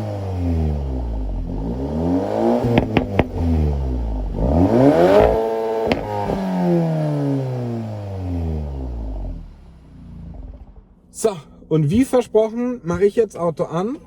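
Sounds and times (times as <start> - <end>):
car engine revving: 0.0 - 10.8
exhaust cracks: 0.9 - 6.7.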